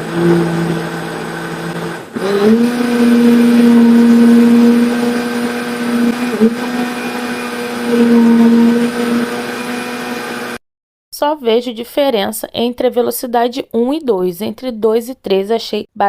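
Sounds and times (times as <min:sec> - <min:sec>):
electric blender motor: 0:00.0 - 0:10.6.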